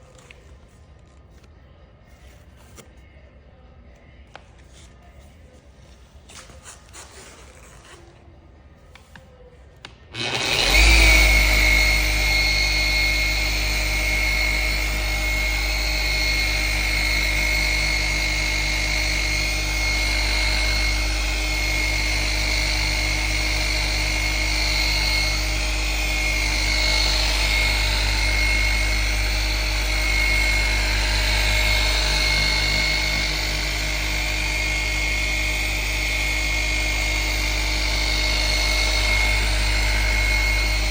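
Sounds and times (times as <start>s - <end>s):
polishing machine whining: 10.1s - 40.9s.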